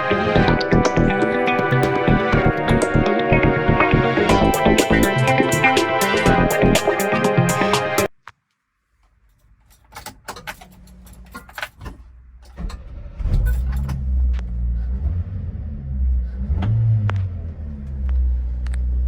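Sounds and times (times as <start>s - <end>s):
truck engine starting and idling: 0.3s - 7.9s, 12.2s - 19.0s
clicks and rattles: 9.4s - 12.8s.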